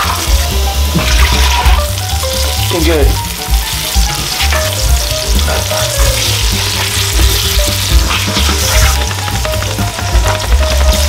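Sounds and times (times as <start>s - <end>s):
background music with bass beat: 0.0s - 11.0s
chicken sizzling in oil: 0.0s - 11.0s
metal spatula in pan: 4.0s - 9.6s.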